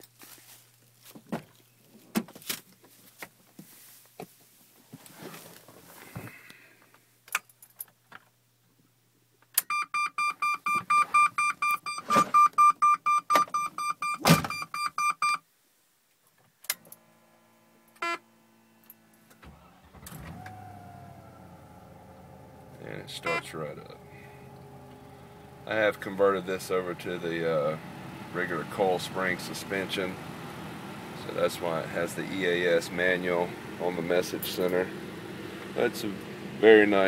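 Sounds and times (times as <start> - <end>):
dashboard warning chime beeping: 9.7 - 15.4, 18.0 - 18.2, 22.9 - 27.2
car engine cranking and starting: 16.8 - 37.0.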